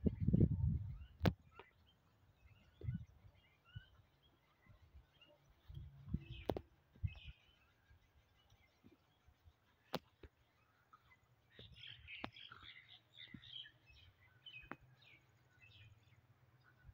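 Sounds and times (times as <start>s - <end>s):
faint birds chirping: 0.0s - 16.9s.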